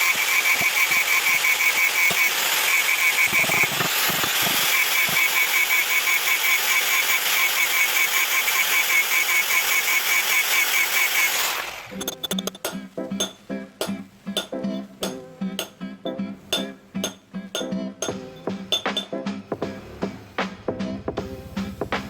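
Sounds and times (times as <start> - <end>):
power tool whining: 0.0 - 12.6
guitar music: 12.0 - 22.0.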